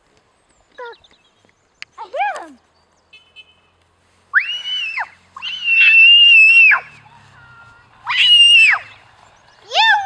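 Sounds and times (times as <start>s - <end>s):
young child shrieking: 4.4s - 6.9s.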